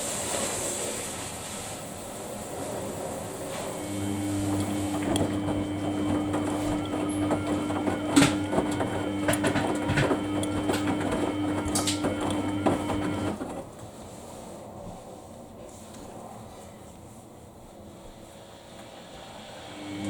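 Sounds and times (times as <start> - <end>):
washing machine motor hum: 2.0 - 14.3, 18.9 - 20.0
washing machine drum knocks: 4.5 - 13.3.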